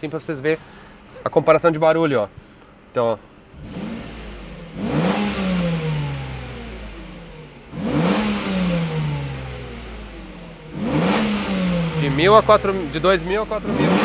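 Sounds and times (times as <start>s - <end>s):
car engine revving: 3.4s - 14.0s.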